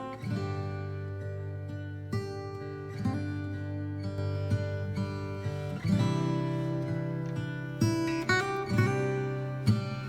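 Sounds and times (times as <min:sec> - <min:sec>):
plucked acoustic guitar: 0:00.0 - 0:10.0.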